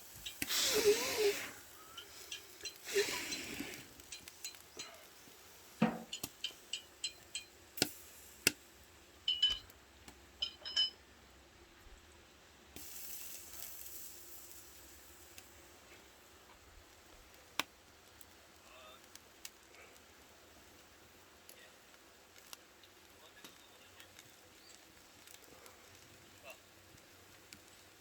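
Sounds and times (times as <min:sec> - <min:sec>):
hiss: 0:00.0 - 0:06.9, 0:07.8 - 0:08.6, 0:12.8 - 0:16.4
utensils and dishes clinking: 0:00.2 - 0:05.0, 0:05.8 - 0:07.6, 0:10.4 - 0:11.0.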